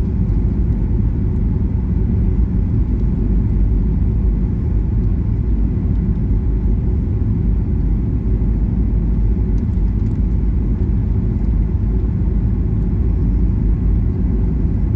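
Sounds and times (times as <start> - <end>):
airliner cabin rumble: 0.0 - 14.9.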